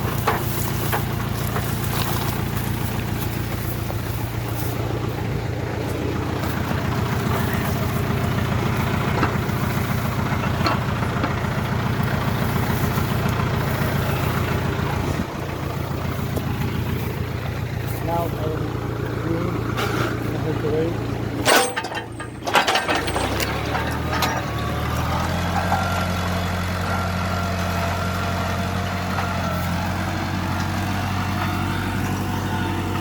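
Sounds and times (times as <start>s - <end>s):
tractor engine running: 0.0s - 33.0s.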